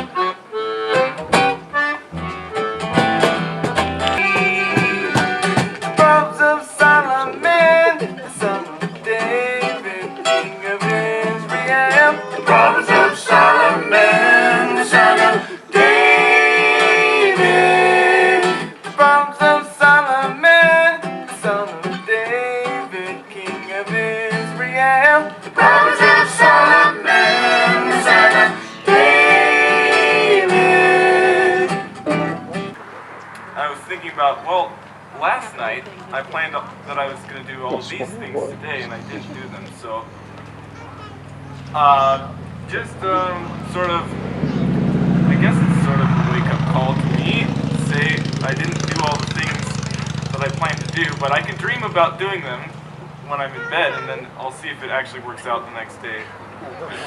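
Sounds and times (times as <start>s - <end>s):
acoustic guitar strumming: 0.0s - 33.6s, 34.5s - 55.0s
person singing: 4.2s - 32.7s, 53.6s - 54.2s.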